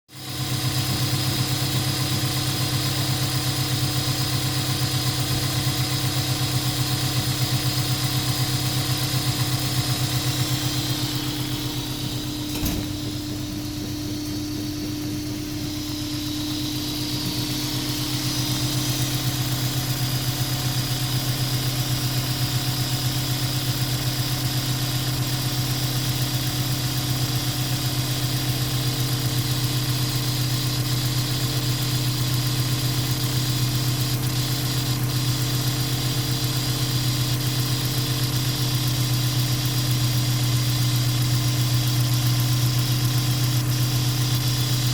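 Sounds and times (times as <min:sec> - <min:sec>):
car engine idling: 0:00.2 - 0:44.9
single click: 0:12.4 - 0:13.0.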